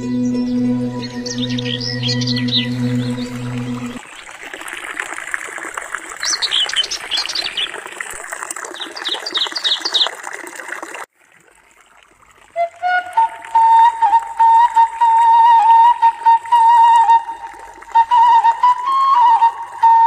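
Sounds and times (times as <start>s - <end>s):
bird chirping: 0.0s - 4.0s
flute note: 0.0s - 4.0s, 12.6s - 20.0s
low droning music tone: 0.0s - 4.0s
water trickling in a stream: 1.2s - 20.0s.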